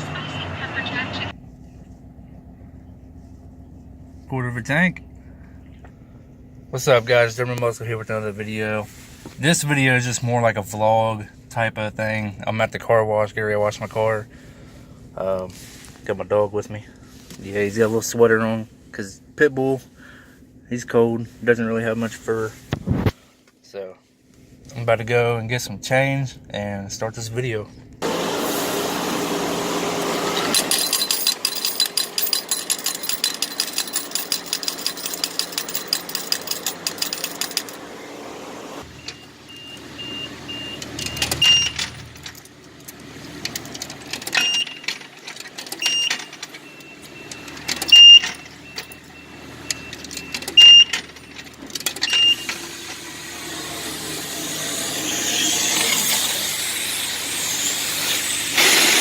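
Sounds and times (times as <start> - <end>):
change machine clattering out coins: 30.2 - 37.8, 43.6 - 52.7
sharp electronic beeps: 45.8 - 51.4.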